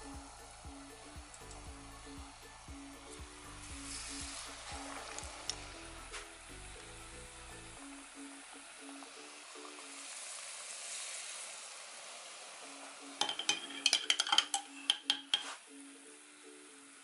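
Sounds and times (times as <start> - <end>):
batter frying in hot oil: 0.0 - 17.0
metal spoon clinking glass jar: 13.2 - 15.5.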